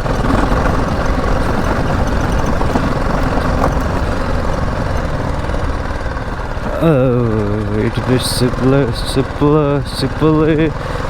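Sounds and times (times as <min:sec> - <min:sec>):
motorcycle engine running: 0:00.0 - 0:11.0
road and wind noise: 0:00.0 - 0:11.0.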